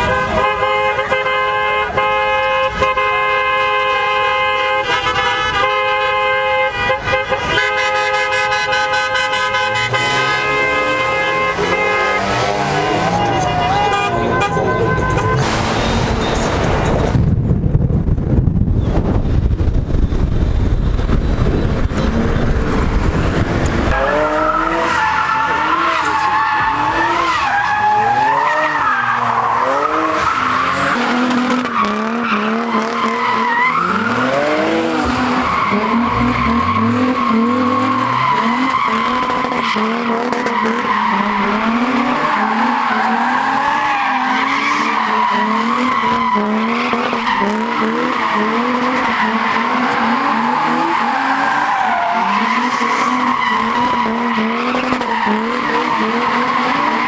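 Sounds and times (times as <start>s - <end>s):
car engine revving: 0.0s - 17.2s, 18.9s - 57.0s
heavy low rumble: 15.0s - 24.0s.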